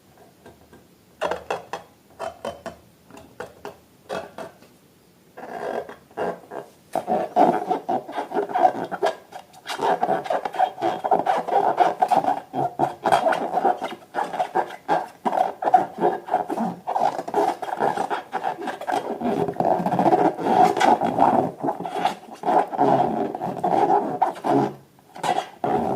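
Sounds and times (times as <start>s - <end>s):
rubber balloons squeaking: 5.4s - 25.9s.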